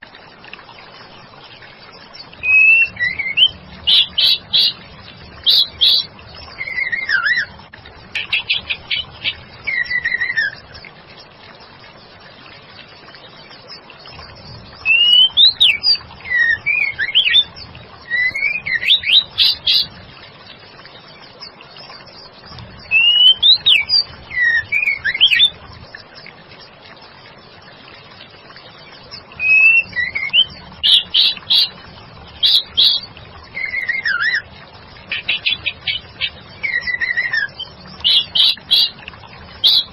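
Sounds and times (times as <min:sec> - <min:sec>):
bird singing sliding whistled notes: 0:02.4 - 0:04.8, 0:05.4 - 0:07.6, 0:08.2 - 0:10.7, 0:14.8 - 0:19.9, 0:22.8 - 0:25.6, 0:29.4 - 0:31.7, 0:32.4 - 0:34.4, 0:35.1 - 0:39.0.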